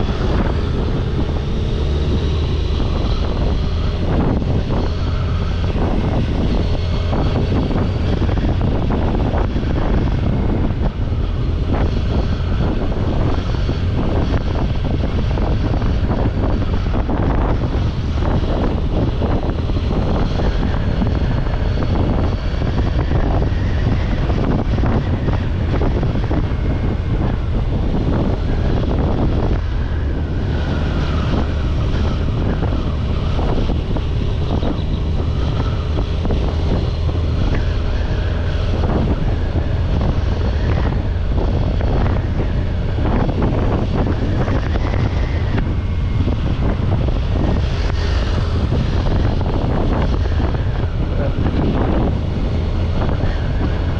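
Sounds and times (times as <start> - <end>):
motorcycle engine running: 0.0 - 53.9
wind rushing across microphone: 0.0 - 53.9.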